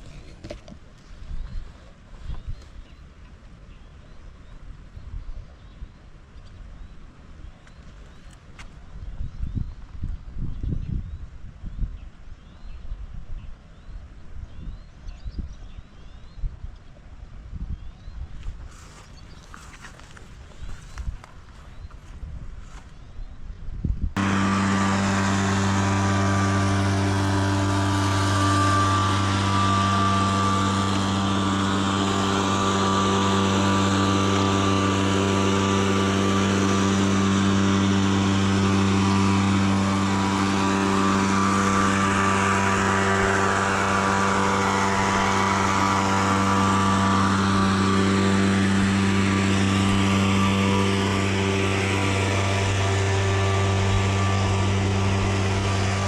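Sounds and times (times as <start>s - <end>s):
machine humming: 24.2s - 56.0s.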